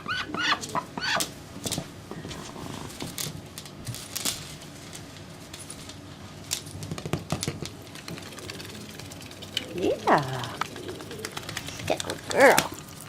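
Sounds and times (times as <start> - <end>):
duck bill pecking at toy: 6.8 - 12.9.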